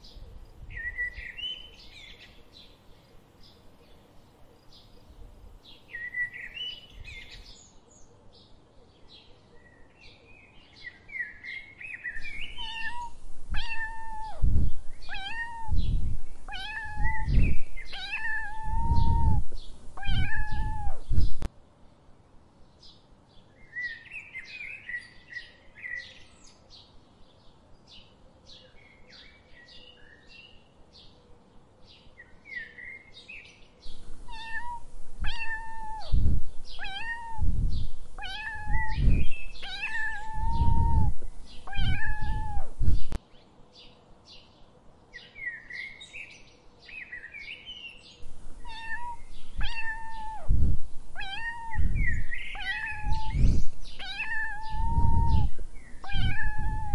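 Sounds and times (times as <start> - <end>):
soft high chirping calls: 0.0 - 4.0, 4.6 - 7.6, 10.8 - 21.5, 32.6 - 43.2, 45.2 - 56.9
cats meowing: 12.4 - 21.5, 34.2 - 43.2, 48.5 - 56.9.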